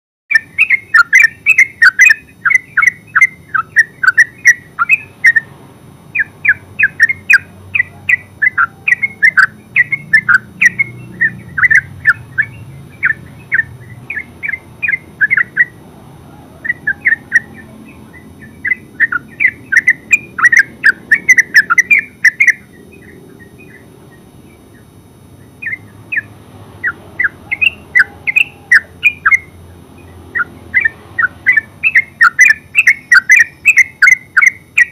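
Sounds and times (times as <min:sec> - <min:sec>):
bird chattering song: 0:00.3 - 0:34.9.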